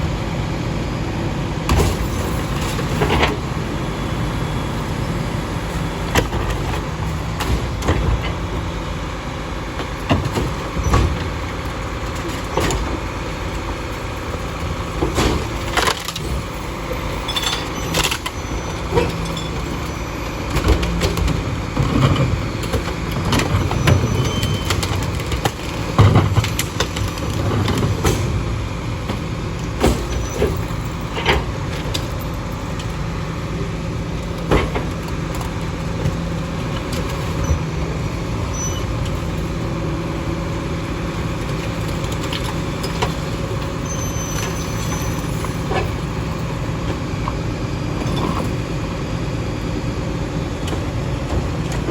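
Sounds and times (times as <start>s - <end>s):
garbage truck running: 0.0s - 51.9s.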